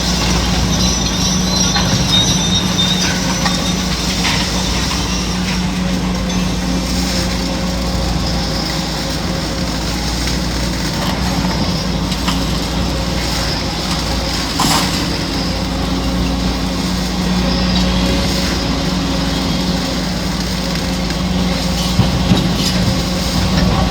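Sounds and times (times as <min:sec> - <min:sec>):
demolition knocks: 0:00.0 - 0:08.2, 0:20.8 - 0:23.9
heavy diesel engine running: 0:00.0 - 0:23.9.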